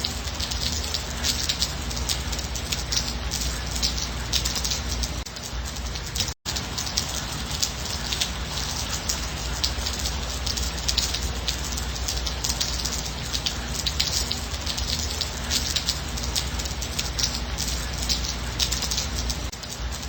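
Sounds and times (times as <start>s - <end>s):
close raindrop hits: 0.0s - 20.0s
steady gentle rain: 0.0s - 20.0s.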